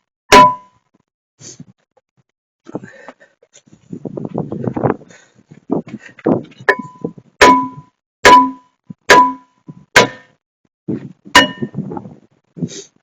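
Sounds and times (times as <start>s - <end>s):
metal being struck clanging: 0.3s - 0.7s, 6.7s - 10.3s, 11.4s - 11.8s.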